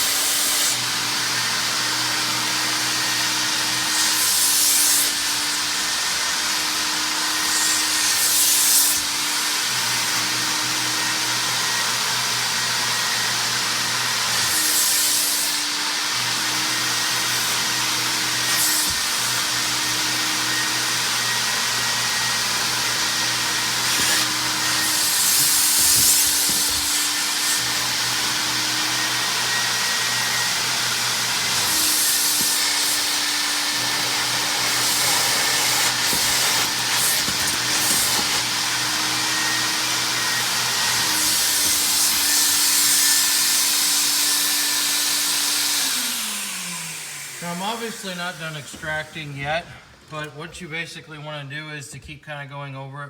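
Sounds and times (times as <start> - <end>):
carpet extractor vacuum motor humming: 15.7 - 48.8
hissing suction: 22.3 - 44.1, 45.5 - 50.3.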